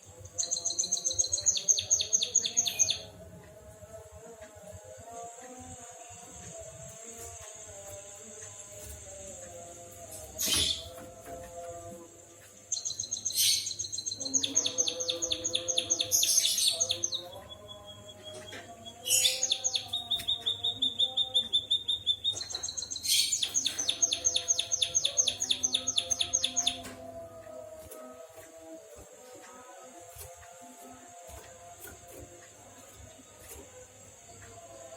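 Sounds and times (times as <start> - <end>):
songbird trilling song: 0.4 - 3.2, 12.7 - 27.0.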